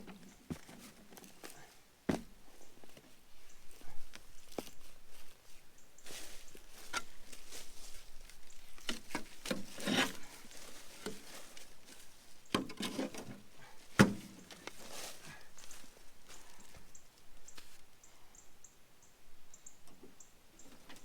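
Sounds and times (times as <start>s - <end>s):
hands and tools scraping dirt: 6.2s - 15.8s.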